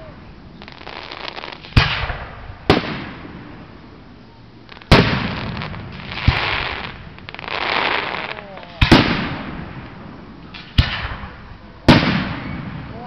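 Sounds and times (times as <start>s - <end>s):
firework shells bursting: 4.7s - 12.7s.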